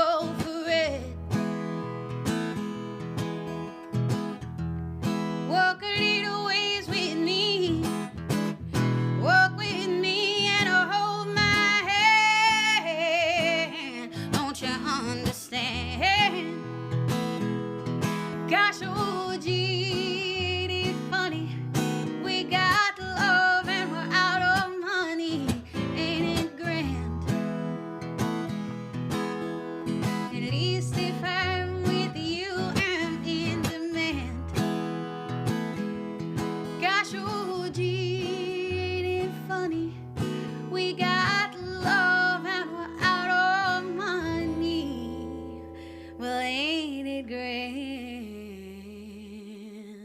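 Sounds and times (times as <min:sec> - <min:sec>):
woman singing with vibrato: 0:00.0 - 0:01.2, 0:05.5 - 0:08.1, 0:09.1 - 0:16.8, 0:18.4 - 0:27.2, 0:30.2 - 0:34.5, 0:36.8 - 0:50.0
acoustic guitar strumming: 0:00.0 - 0:47.1.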